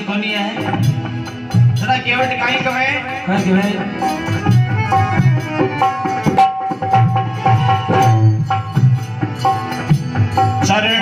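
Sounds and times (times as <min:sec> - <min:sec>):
hand drum beat: 0:02.5 - 0:11.0.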